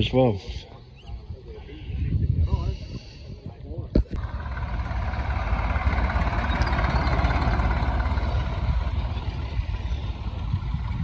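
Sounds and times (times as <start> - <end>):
tractor engine rumbling: 4.0 - 11.0.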